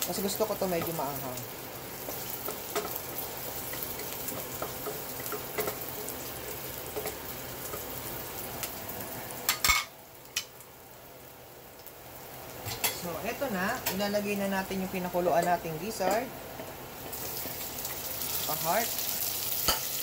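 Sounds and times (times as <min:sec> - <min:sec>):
aromatics sizzling in oil: 0:00.0 - 0:20.0.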